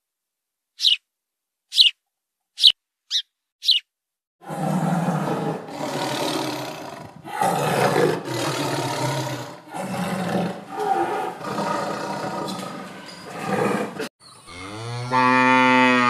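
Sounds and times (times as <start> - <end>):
tiger roaring and growling: 4.4 - 14.1.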